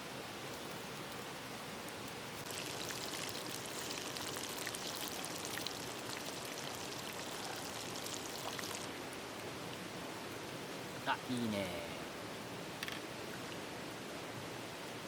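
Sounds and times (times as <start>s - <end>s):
running water hiss: 0.0s - 15.0s
food frying in hot oil: 2.1s - 9.3s.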